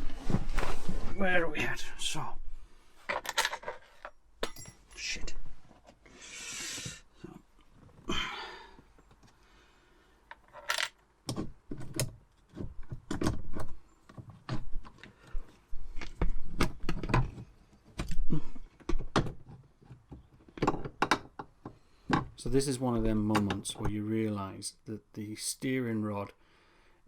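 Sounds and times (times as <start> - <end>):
metal parts clicking and rattling: 3.1 - 5.0, 10.3 - 11.0.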